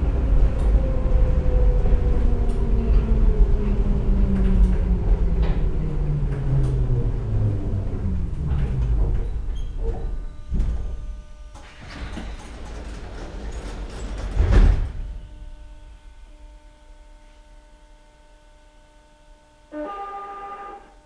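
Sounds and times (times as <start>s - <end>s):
train wheels rumbling: 0.0s - 15.3s
train motor whine: 14.2s - 21.0s.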